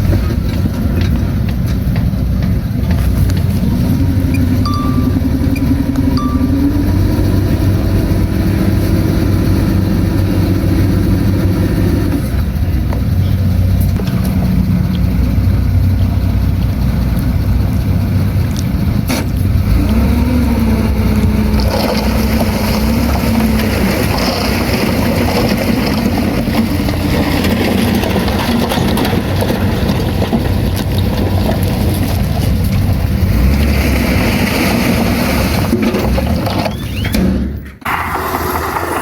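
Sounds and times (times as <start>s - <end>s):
diesel engine running under load: 0.0s - 39.0s.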